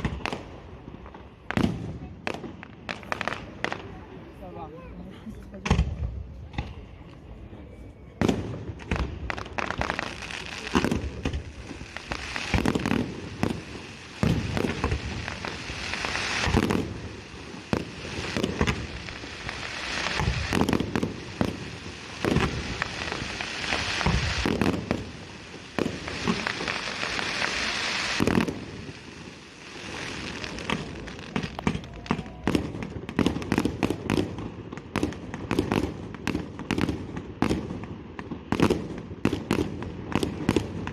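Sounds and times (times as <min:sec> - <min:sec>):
fireworks bangs: 0:00.0 - 0:40.9
fireworks crackling: 0:00.0 - 0:40.9.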